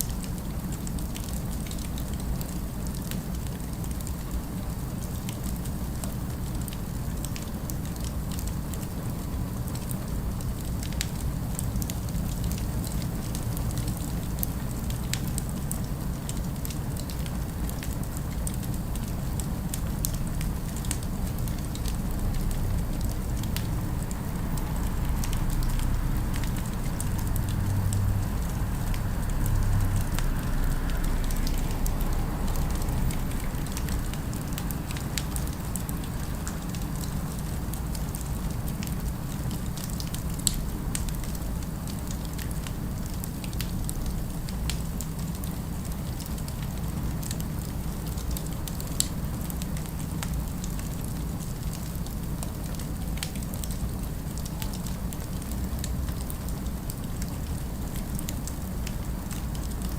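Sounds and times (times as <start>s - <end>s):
distant city ambience: 17.0s - 38.7s.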